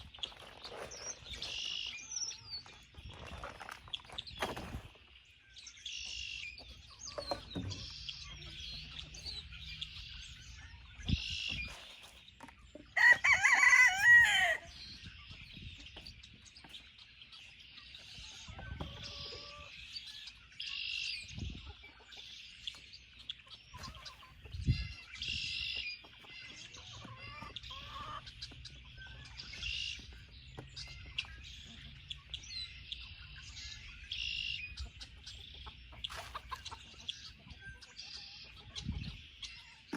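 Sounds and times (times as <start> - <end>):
chickens clucking: 0.0 - 39.9
rooster crowing: 13.0 - 14.7.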